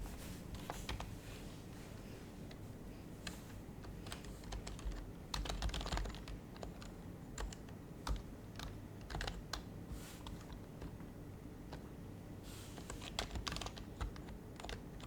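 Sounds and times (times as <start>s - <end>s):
soft keyboard typing: 0.5s - 1.1s, 3.2s - 12.0s, 12.7s - 15.0s.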